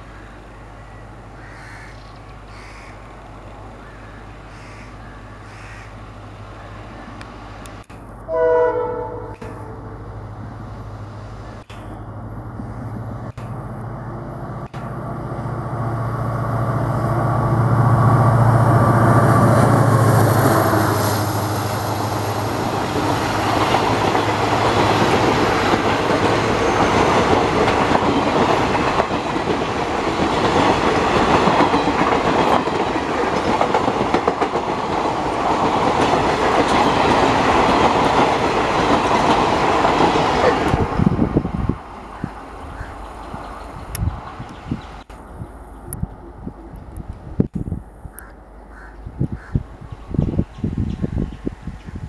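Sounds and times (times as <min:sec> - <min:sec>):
diesel locomotive engine droning: 0:00.0 - 0:52.0
wheels clacking over rail joints: 0:19.0 - 0:41.3.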